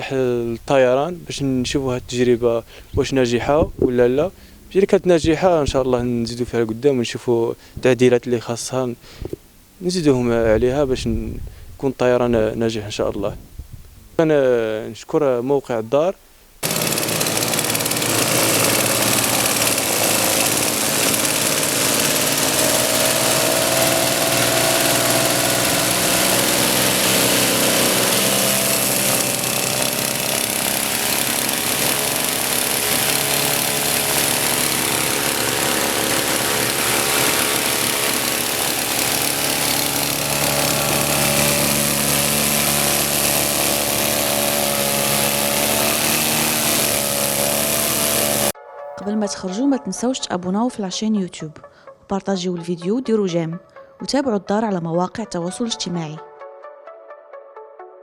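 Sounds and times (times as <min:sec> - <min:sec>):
light aircraft engine running: 0:16.6 - 0:48.5.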